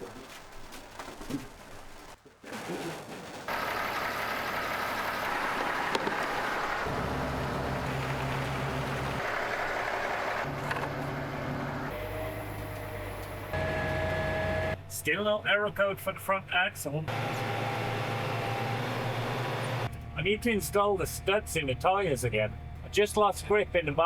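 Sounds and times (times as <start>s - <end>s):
tractor diesel engine running: 3.5s - 14.9s, 17.1s - 24.0s.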